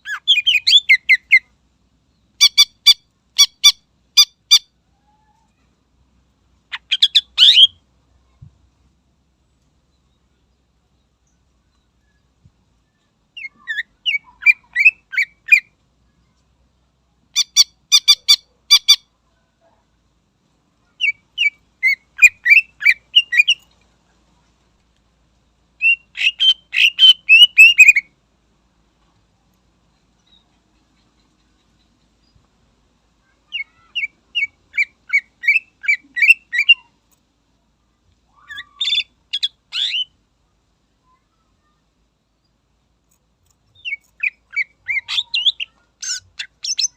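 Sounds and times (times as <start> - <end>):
bird whistling song: 0.0 - 1.5, 6.7 - 7.8, 13.4 - 15.7, 21.0 - 23.6, 25.8 - 28.1, 33.5 - 36.9, 38.3 - 40.2, 43.8 - 46.9
bird singing whistled notes: 25.8 - 28.1, 33.6 - 36.9.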